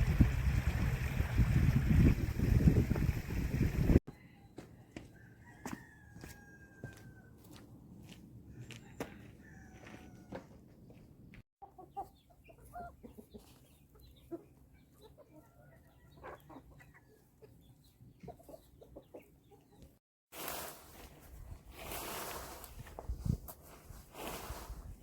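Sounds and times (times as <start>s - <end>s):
chickens clucking faintly: 8.5s - 20.0s.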